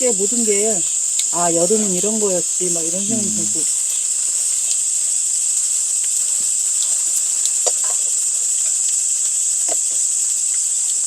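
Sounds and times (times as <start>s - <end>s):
insects chirring: 0.0s - 6.0s.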